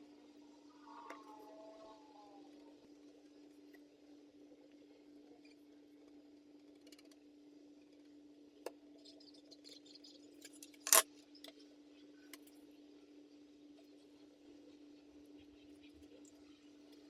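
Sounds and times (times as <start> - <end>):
handling sounds: 10.5 - 11.0
sharp click: 10.6 - 11.0.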